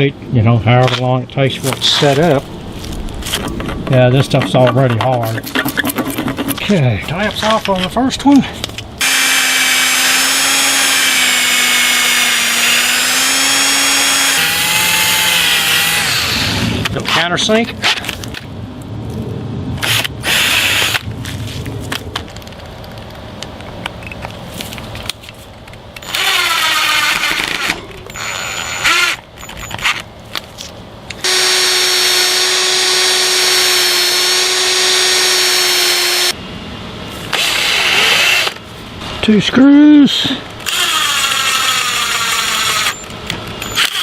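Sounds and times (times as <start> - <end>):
power drill running: 9.0 - 16.9, 26.0 - 30.0, 31.2 - 36.4, 37.3 - 38.6, 40.6 - 44.0.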